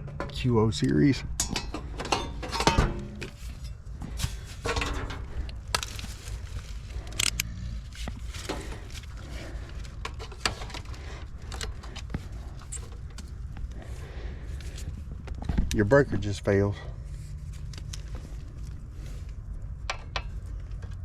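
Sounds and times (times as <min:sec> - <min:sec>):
metallic clicks and scrapes of tools: 0:00.0 - 0:13.4, 0:17.4 - 0:19.4
steady low rumble: 0:00.0 - 0:21.0.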